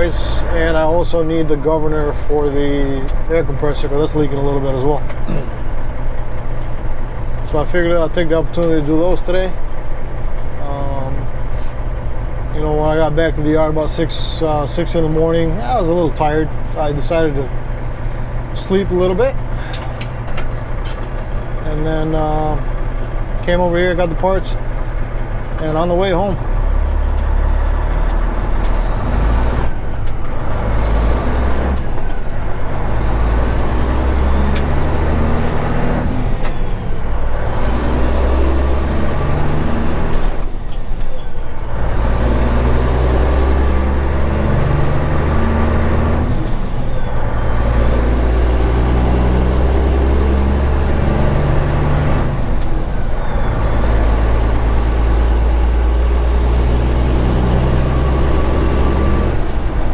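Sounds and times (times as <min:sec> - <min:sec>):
diesel engine accelerating: 0:00.0 - 0:59.9.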